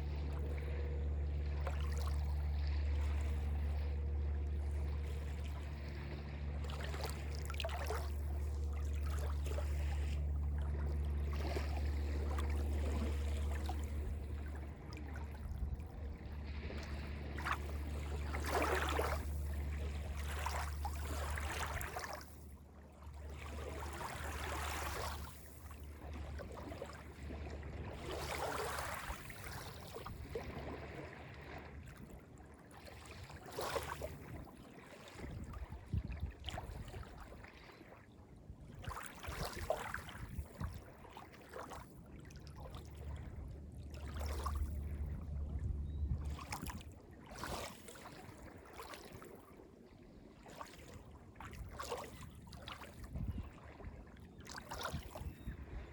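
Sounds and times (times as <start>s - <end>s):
deep steady rumble: 0.0s - 32.6s, 42.0s - 47.2s
small waves lapping on beach: 0.0s - 45.5s, 46.2s - 55.9s.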